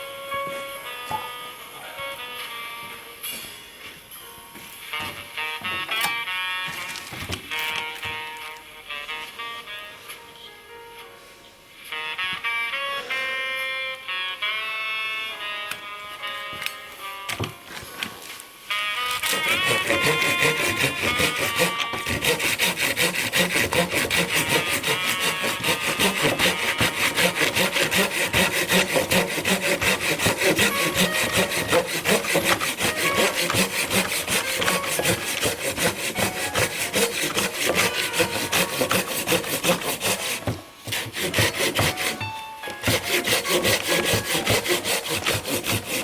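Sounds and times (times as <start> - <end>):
hand saw cutting wood: 19.2 - 46.0.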